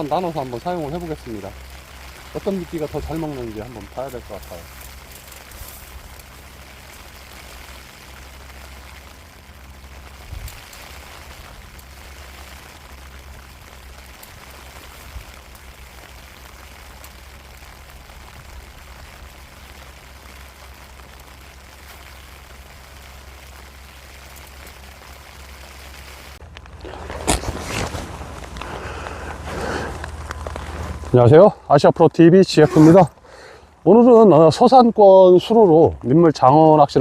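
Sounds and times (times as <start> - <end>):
wind rumbling on microphone: 0.0 - 31.3
heavy rain: 0.0 - 37.0.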